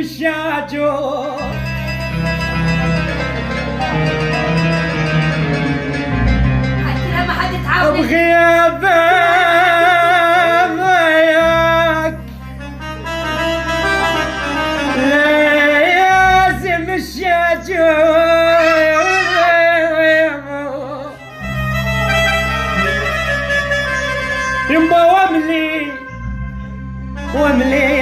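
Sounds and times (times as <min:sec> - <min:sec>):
person singing with vibrato: 0:00.0 - 0:02.3, 0:07.7 - 0:12.3, 0:13.8 - 0:21.6, 0:24.6 - 0:28.0
low sustained backing chords: 0:01.0 - 0:18.6, 0:20.4 - 0:28.0.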